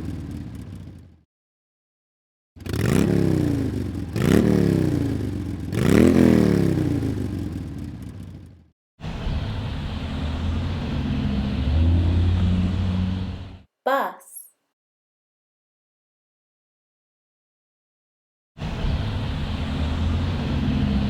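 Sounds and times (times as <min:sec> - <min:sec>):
motorcycle engine revving: 0:00.0 - 0:01.2, 0:02.6 - 0:08.6
motorcycle engine running steadily: 0:00.0 - 0:01.2, 0:02.6 - 0:08.6.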